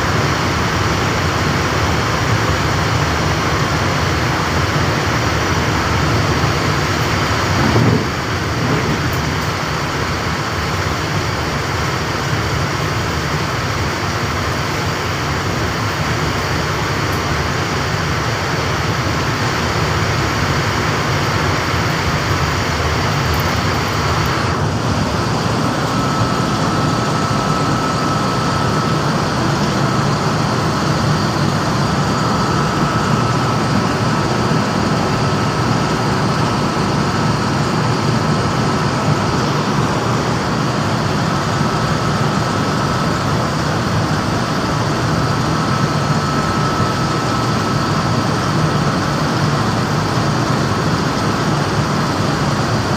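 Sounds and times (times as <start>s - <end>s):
refrigeration machinery running: 0.0s - 52.9s
thin high whine: 13.5s - 52.9s.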